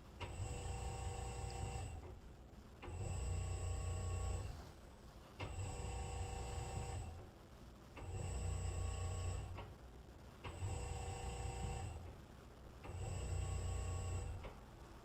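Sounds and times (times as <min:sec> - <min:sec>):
electric motor humming and whining: 0:10.6 - 0:12.0, 0:12.9 - 0:14.4.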